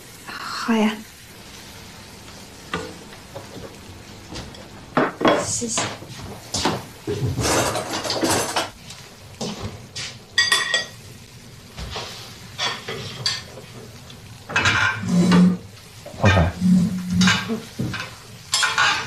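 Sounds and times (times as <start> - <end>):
cutlery and dishes clinking: 7.4 - 8.8, 17.1 - 19.0.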